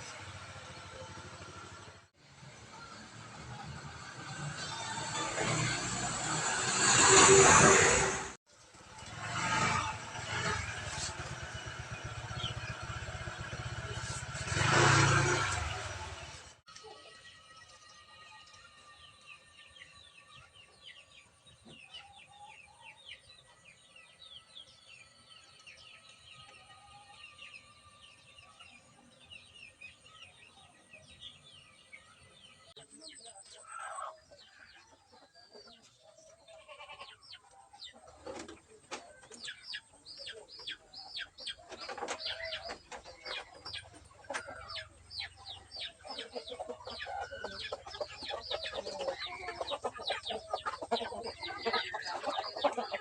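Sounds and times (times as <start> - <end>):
chickens clucking: 27.5 - 53.0.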